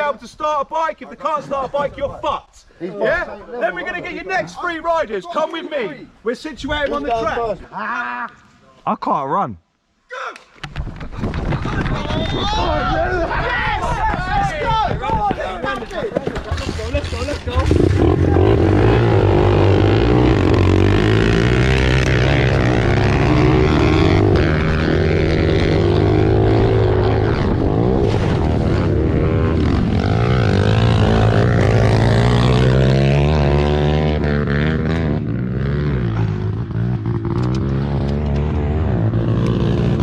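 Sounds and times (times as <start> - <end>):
small engines revving: 16.6 - 40.0.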